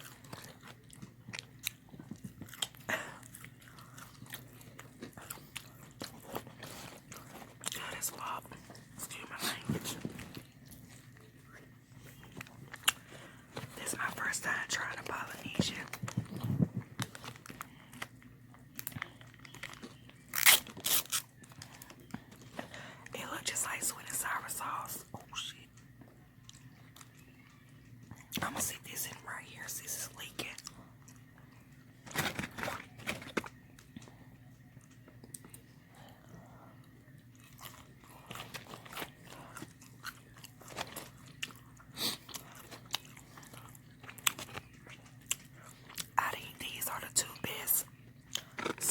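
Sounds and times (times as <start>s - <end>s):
person chewing fried chicken: 0.0s - 7.8s, 10.0s - 13.7s, 15.8s - 22.9s, 30.5s - 46.2s, 48.2s - 48.9s
packaging crinkling and clicks: 15.7s - 22.6s, 32.0s - 34.0s.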